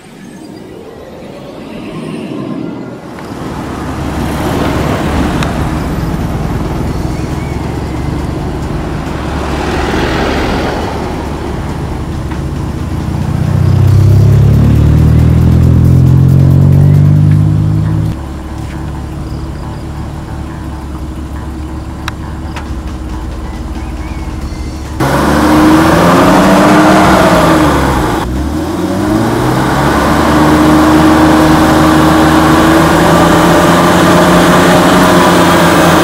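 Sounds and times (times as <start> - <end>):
car exhaust drone: 3.0 - 36.0.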